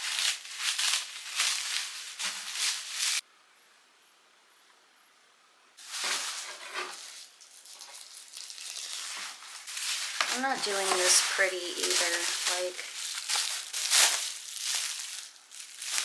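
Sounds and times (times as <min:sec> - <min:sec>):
plastic bag rustling and crinkling: 0:00.0 - 0:03.2, 0:05.8 - 0:16.0.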